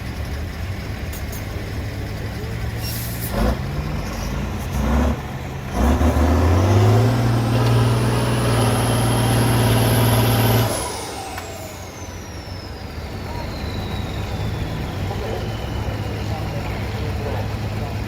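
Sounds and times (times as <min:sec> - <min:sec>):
diesel truck engine revving: 0:00.0 - 0:18.0
turbo whistle: 0:11.6 - 0:16.4.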